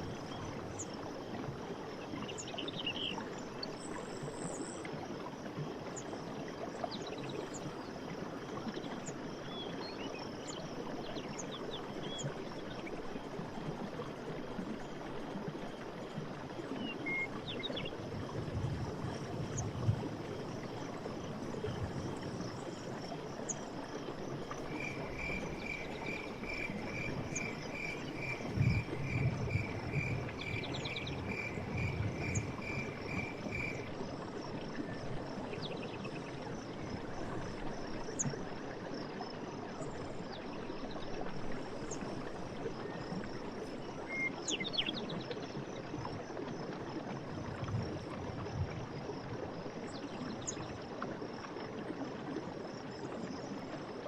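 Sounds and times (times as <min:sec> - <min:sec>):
rushing water: 0:00.0 - 0:54.0
insects trilling: 0:19.5 - 0:35.1.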